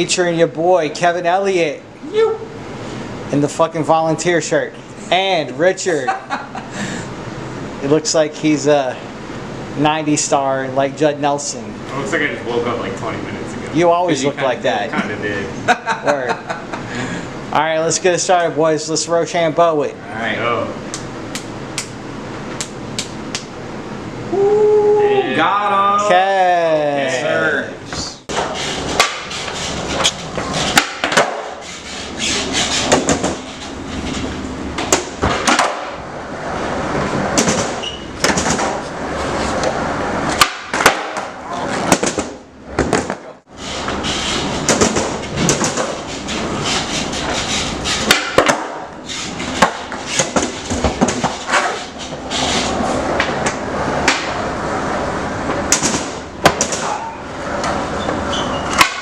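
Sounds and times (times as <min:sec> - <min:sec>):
skateboard rolling: 0:35.2 - 0:37.4, 0:38.6 - 0:41.9.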